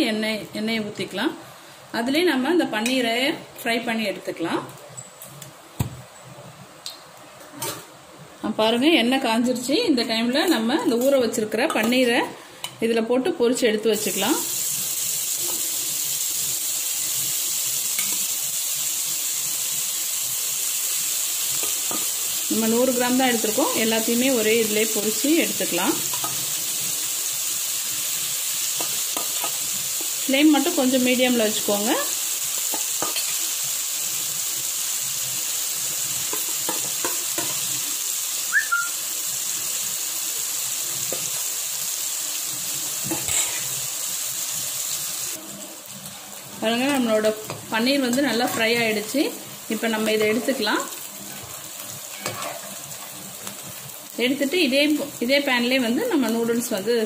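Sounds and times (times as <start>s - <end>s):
food sizzling in hot oil: 13.4s - 57.0s
short high squeak: 38.5s - 38.9s.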